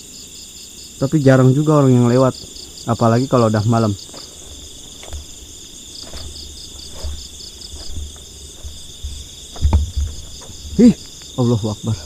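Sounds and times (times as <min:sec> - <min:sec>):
crickets trilling: 0:00.0 - 0:12.0
insects pulsing chirp: 0:00.0 - 0:12.0
faint knocks: 0:04.0 - 0:11.3.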